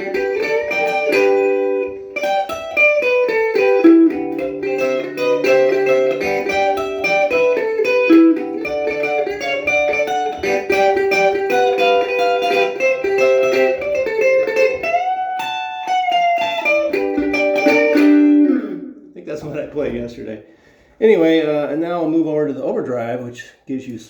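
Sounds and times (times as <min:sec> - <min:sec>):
electric guitar melody: 0:00.0 - 0:19.2.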